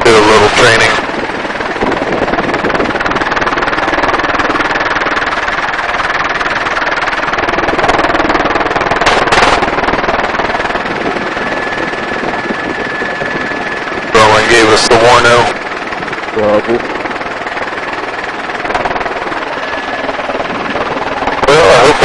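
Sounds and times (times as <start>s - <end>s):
helicopter rotor and engine: 0.0s - 22.0s
rush of noise: 0.0s - 22.0s.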